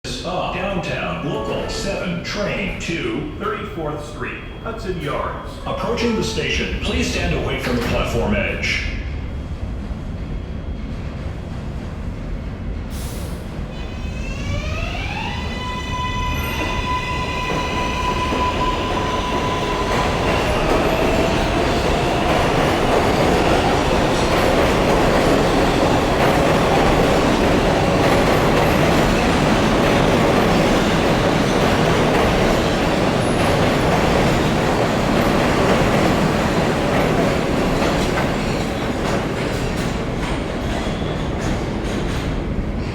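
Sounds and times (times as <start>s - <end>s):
train wheels rumbling on track: 0.1s - 42.9s
electric train propulsion whine: 13.7s - 38.6s.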